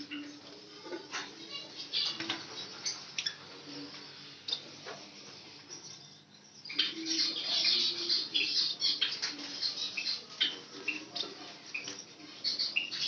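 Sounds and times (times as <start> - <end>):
cage birds chirping: 0.0 - 13.0.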